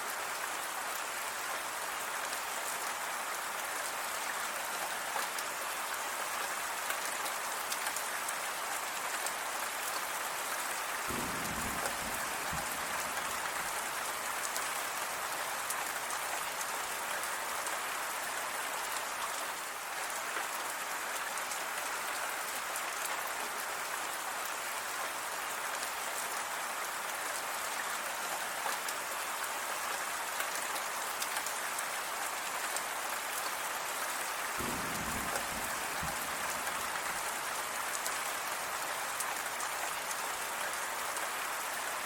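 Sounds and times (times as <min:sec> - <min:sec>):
rain pattering on a surface: 0:00.0 - 0:42.0.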